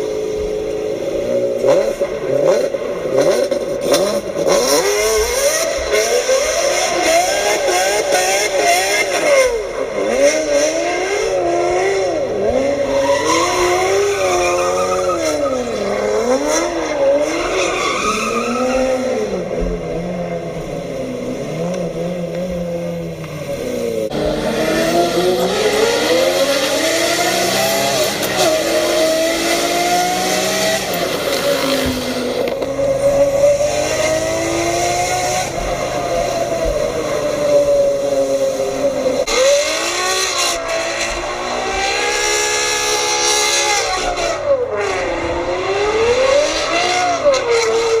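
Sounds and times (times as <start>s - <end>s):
car engines revving: 0.0s - 48.0s
tyre squeal: 12.7s - 16.4s.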